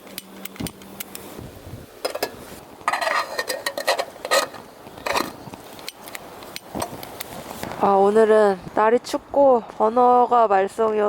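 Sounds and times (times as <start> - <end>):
ringing metal scrape: 2.1 - 5.4.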